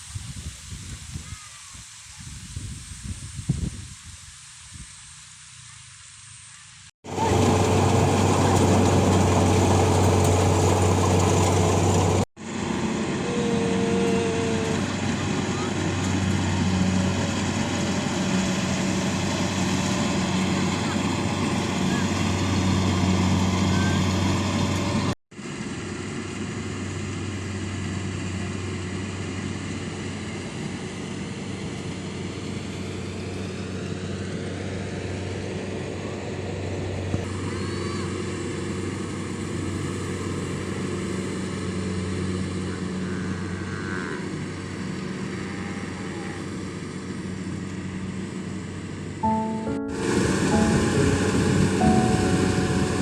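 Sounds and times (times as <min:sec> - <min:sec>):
engine running steadily: 0:07.0 - 0:53.0.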